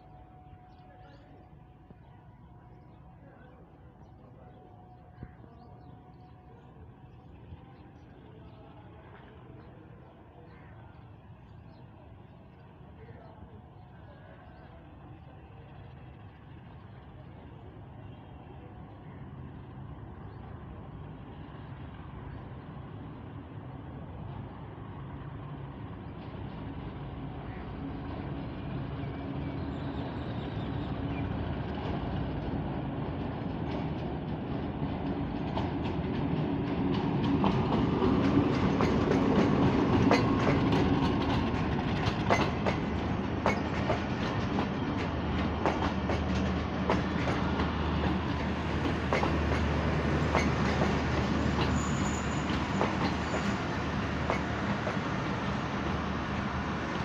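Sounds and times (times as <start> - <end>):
diesel locomotive engine passing: 0.0 - 57.0
train wheels clickety-clack: 29.8 - 57.0.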